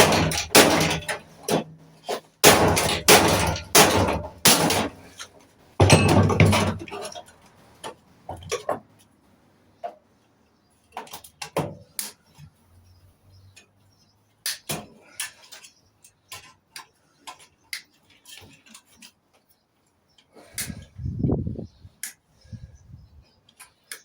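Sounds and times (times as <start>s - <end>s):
metallic clicks and knocks: 0.0s - 1.7s
metal clanks: 0.0s - 7.4s.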